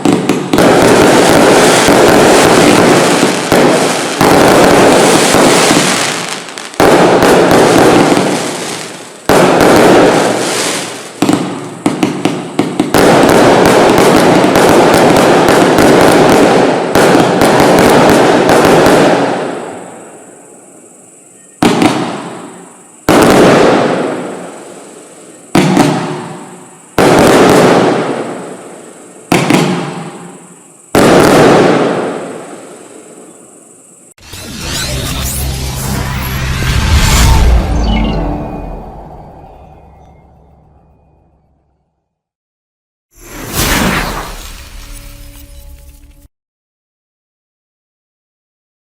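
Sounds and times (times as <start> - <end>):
single loud firework shots: 0.0 - 20.0, 21.6 - 24.6, 25.5 - 28.6, 29.3 - 32.8, 43.2 - 46.0
fireworks bangs and crackle: 0.0 - 40.6, 43.2 - 46.3.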